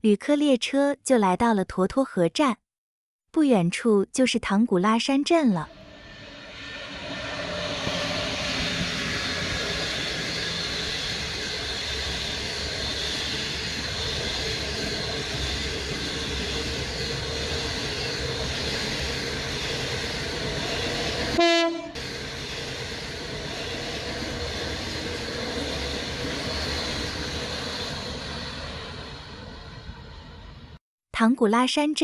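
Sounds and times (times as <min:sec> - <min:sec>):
train running: 0:05.6 - 0:30.8
train horn blast: 0:21.3 - 0:22.0.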